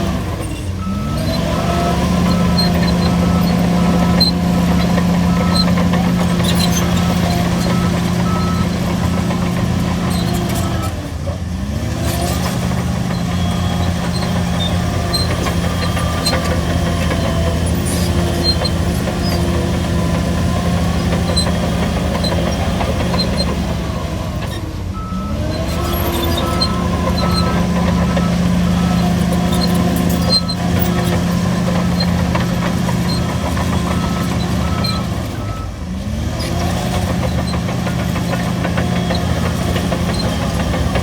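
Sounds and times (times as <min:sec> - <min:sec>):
bulldozer diesel engine running: 0:00.0 - 0:41.0
tracks clanking and squeaking: 0:00.0 - 0:41.0
back-up alarm beeping: 0:00.8 - 0:10.9, 0:25.0 - 0:35.7.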